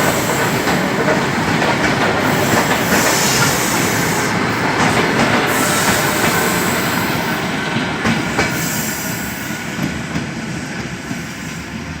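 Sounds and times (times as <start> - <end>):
wheels clacking over rail joints: 0.0 - 8.7
electric train running: 0.0 - 11.9.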